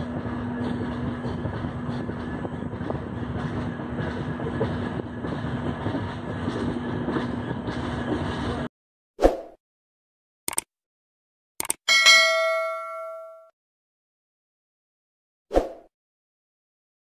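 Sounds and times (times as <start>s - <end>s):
wheels running on rails: 0.0s - 8.7s.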